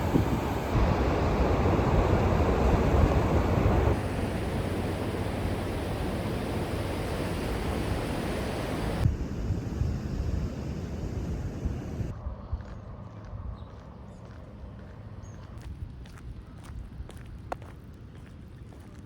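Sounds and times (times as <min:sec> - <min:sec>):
ocean surf rushing: 0:00.0 - 0:12.1
wind on microphone: 0:00.0 - 0:12.7.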